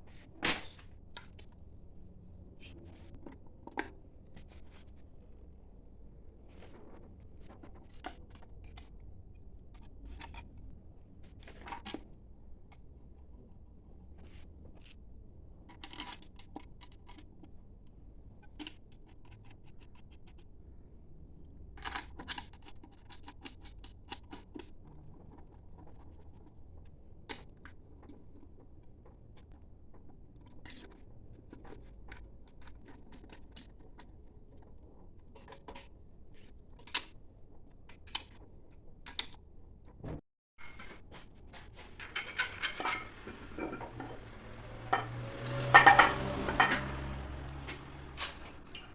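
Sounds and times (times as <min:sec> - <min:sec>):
metal tools clinking and scraping: 0:14.8 - 0:15.0, 0:40.6 - 0:48.9.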